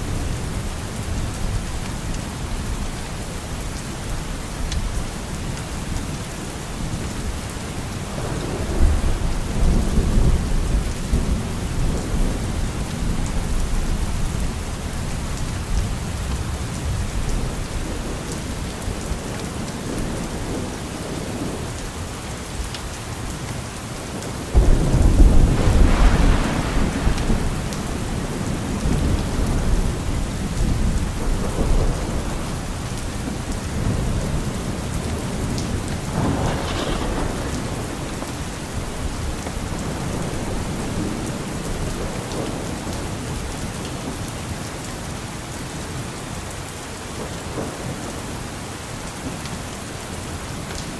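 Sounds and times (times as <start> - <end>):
rain falling: 0.0 - 50.9
thunder rumbling: 7.3 - 21.8, 24.1 - 43.5.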